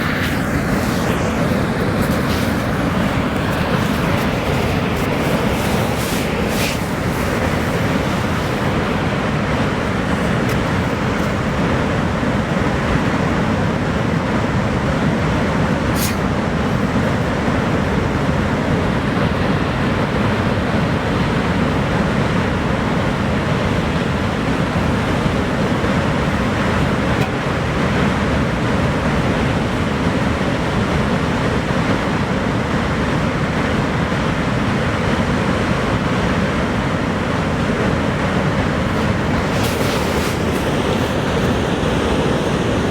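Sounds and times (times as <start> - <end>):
heavy falling water rushing: 0.0 - 11.6, 38.6 - 42.9.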